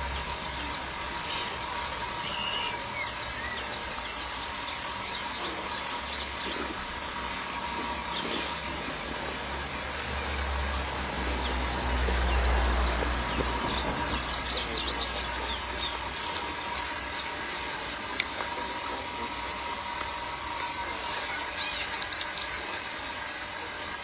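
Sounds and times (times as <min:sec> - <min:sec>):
birds calling: 0:00.0 - 0:23.1
vehicle engine rumble: 0:06.5 - 0:17.1
high falling chirp: 0:09.6 - 0:17.1.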